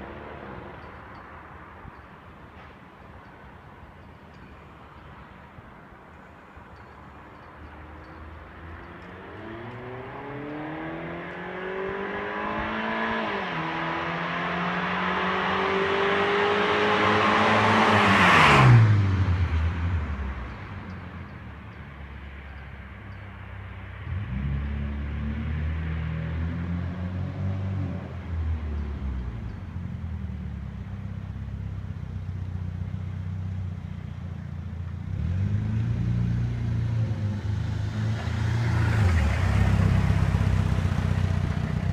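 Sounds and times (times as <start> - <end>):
car passing by: 8.6 - 20.9, 35.1 - 41.9.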